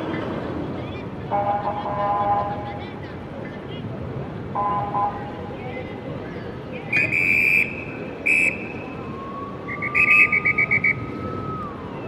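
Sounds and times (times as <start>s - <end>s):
street noise: 0.0s - 12.0s
shrill whistle blasts: 6.9s - 8.9s, 9.7s - 11.2s
police siren: 6.9s - 12.0s.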